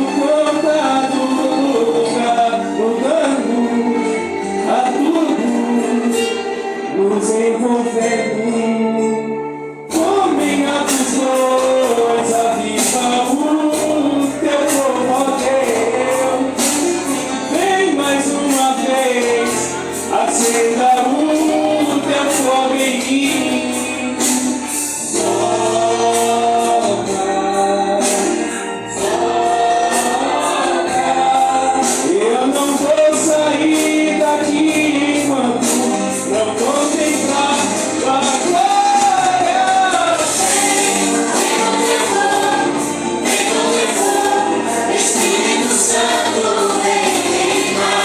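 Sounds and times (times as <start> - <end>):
band accompaniment: 0.0 - 48.0
group singing gospel song: 9.9 - 48.0.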